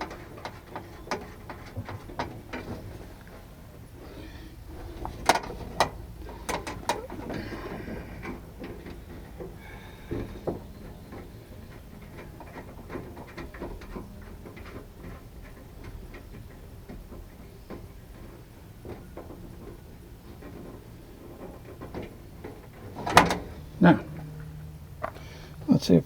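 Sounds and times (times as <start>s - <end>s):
metal parts rattling: 0.0s - 10.4s, 19.3s - 25.7s
metallic clicks and clanks: 0.0s - 25.8s.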